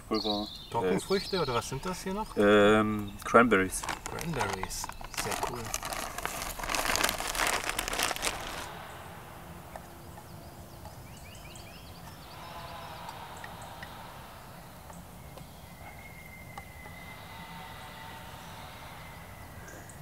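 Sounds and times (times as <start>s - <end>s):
rustling and crunching handling noise: 3.2s - 8.7s.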